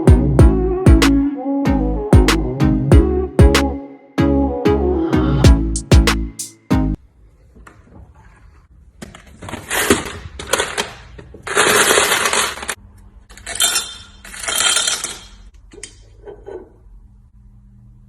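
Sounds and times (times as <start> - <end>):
kitchenware clinking and rattling: 9.4 - 16.8.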